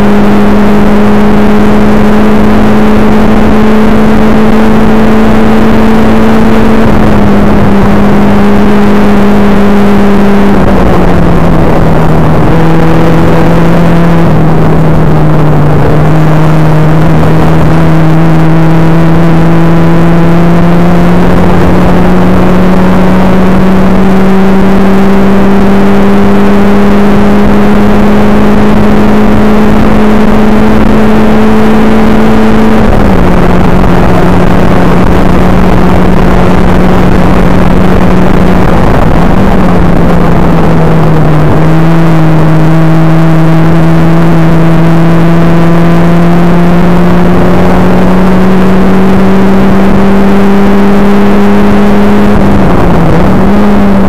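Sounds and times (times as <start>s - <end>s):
car engine pulling hard: 0.0s - 54.0s
heavy wind rush: 1.5s - 19.5s, 32.0s - 44.8s.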